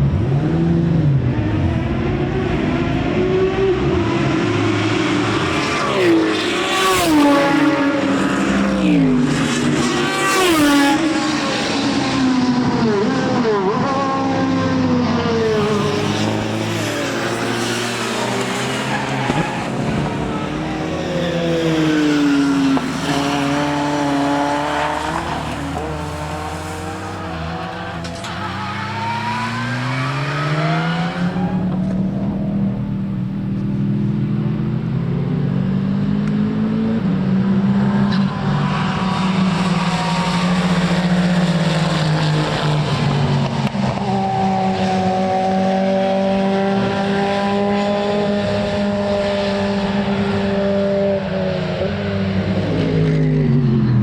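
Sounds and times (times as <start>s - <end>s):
racing car engine accelerating: 0.0s - 54.0s.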